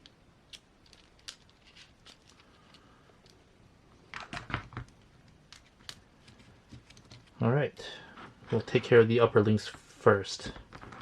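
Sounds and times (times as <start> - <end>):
small parts clicking and tapping: 0.0 - 3.5, 4.1 - 7.4.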